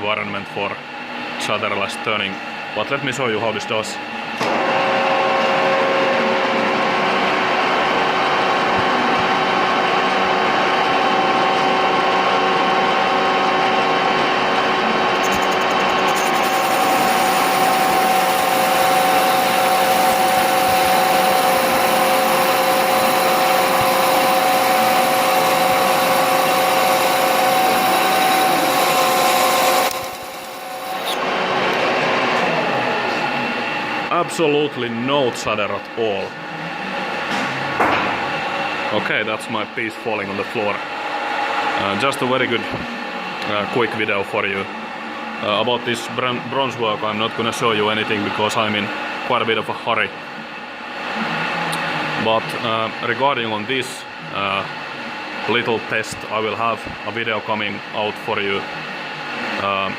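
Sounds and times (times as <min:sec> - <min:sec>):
lathe cutting hiss: 0:15.2 - 0:31.2.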